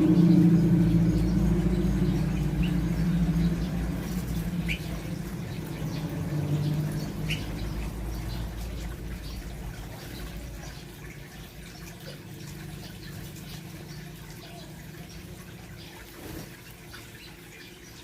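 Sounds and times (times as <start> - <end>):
loud low hum: 0.0 - 14.3
small birds chirping: 0.0 - 18.0.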